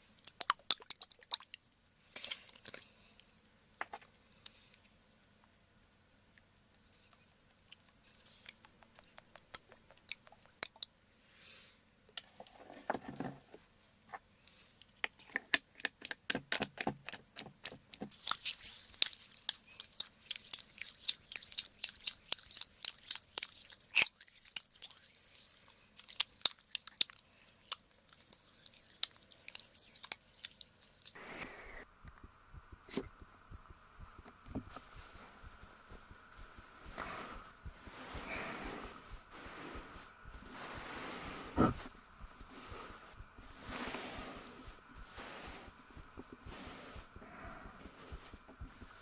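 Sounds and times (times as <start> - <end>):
soft rubbing swishes: 34.0 - 49.0.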